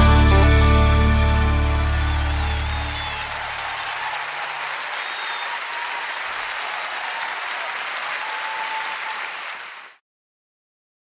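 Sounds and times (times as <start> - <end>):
band low note: 0.0 - 3.0
audience applauding: 0.3 - 10.0
high whistles: 1.8 - 9.6.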